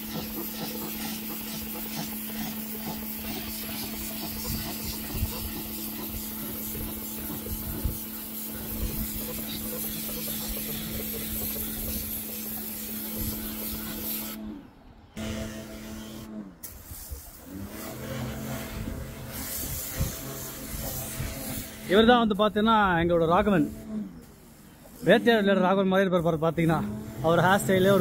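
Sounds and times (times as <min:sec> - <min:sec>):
water jet hissing on paving: 0:00.0 - 0:14.4, 0:16.6 - 0:22.0
pressure washer motor humming: 0:00.0 - 0:14.6, 0:15.2 - 0:25.4, 0:26.2 - 0:28.0.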